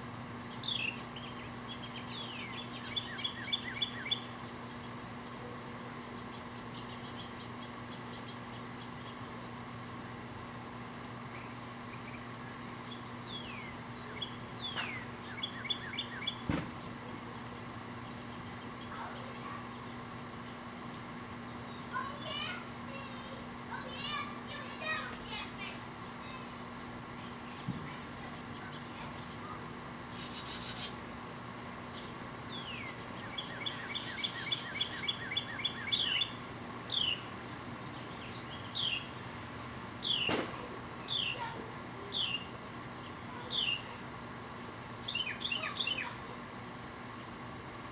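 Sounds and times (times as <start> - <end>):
steady low hum: 0.0 - 47.9
birds chirping: 0.2 - 47.8
sharp pop: 16.5 - 16.8, 40.2 - 40.6
buzzy bird trills: 17.4 - 31.1, 31.8 - 37.3.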